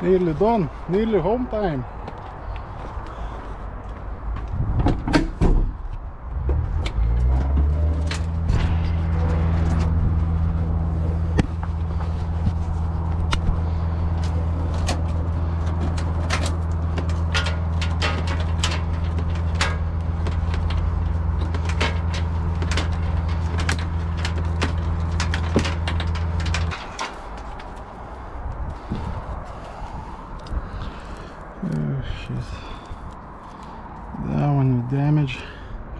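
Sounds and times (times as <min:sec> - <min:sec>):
sharp clicks and rattles: 0:04.4 - 0:29.5
truck diesel engine droning: 0:06.0 - 0:35.8.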